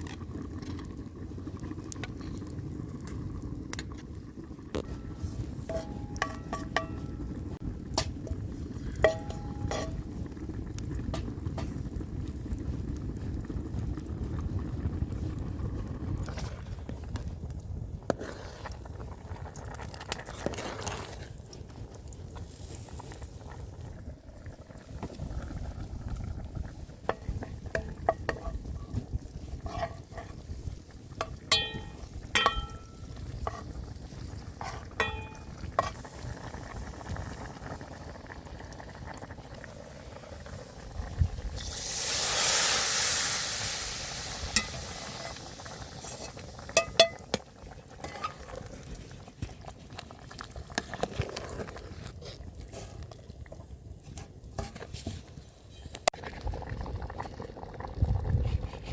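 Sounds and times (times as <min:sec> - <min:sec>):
metal utensil clinking against pot: 0:05.7 - 0:07.2, 0:09.1 - 0:10.0, 0:31.5 - 0:33.1, 0:35.0 - 0:35.6, 0:46.8 - 0:47.2.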